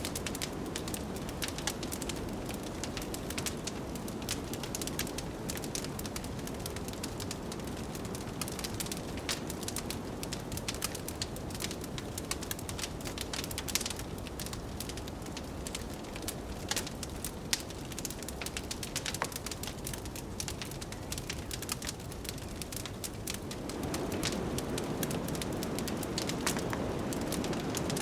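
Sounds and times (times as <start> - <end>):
wood fire crackling and popping: 0.0 - 28.0
blizzard wind rushing: 23.4 - 28.0.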